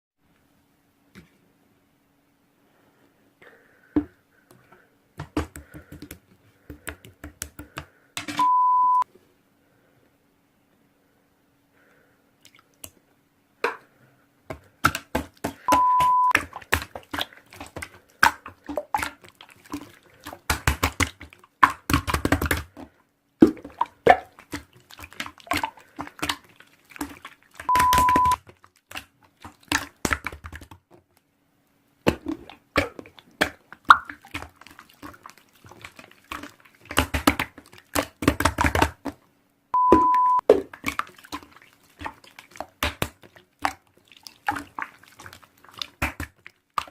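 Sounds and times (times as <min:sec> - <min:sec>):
short steady beeps: 0:08.4 - 0:09.0, 0:15.7 - 0:16.4, 0:27.7 - 0:28.4, 0:39.8 - 0:40.4.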